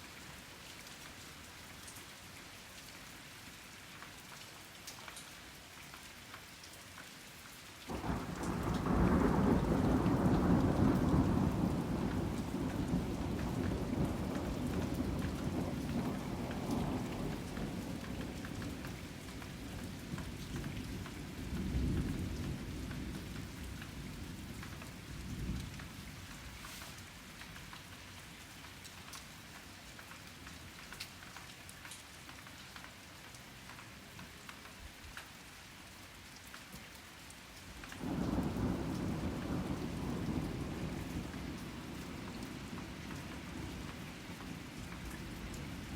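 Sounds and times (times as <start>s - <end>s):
rain falling: 0.0s - 45.9s
thunder rumbling: 7.9s - 24.6s, 38.0s - 45.9s.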